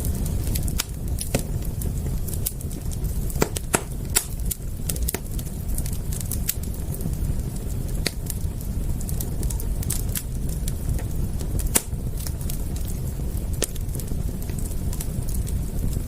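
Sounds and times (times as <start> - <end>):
fire pops and snaps: 0.0 - 16.0
wood fire crackling: 0.0 - 16.0.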